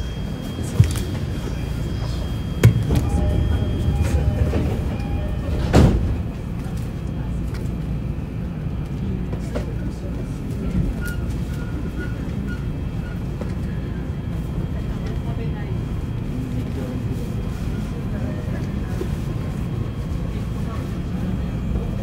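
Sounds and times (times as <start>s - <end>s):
electric train rumbling: 0.0s - 22.0s.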